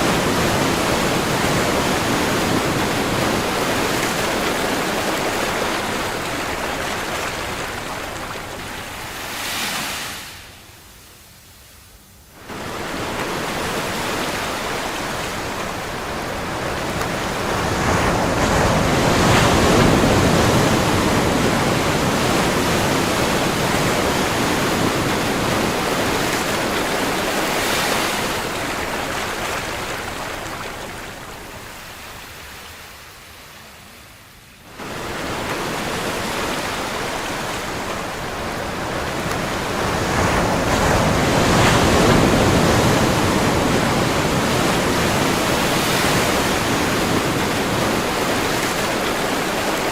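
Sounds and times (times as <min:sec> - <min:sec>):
ocean waves breaking: 0:00.0 - 0:10.6, 0:12.4 - 0:34.1, 0:34.7 - 0:49.9.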